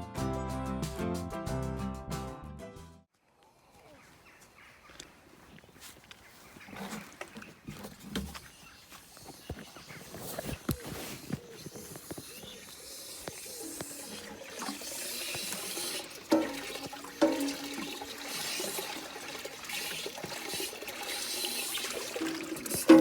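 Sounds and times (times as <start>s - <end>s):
water running and splashing: 6.4s - 23.0s
hollow knocks: 16.3s - 17.9s.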